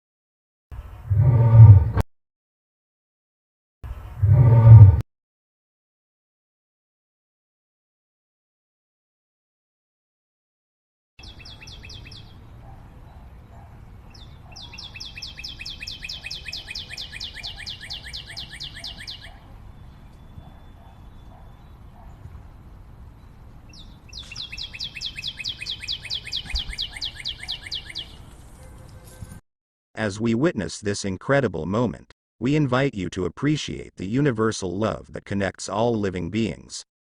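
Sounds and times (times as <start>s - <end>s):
bird calling in fast trills: 11.2s - 12.4s, 13.1s - 22.2s, 23.7s - 28.3s.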